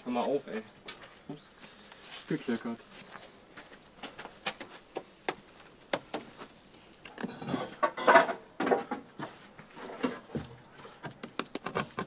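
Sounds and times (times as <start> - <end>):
bricks scraping and clattering: 6.4 - 10.4.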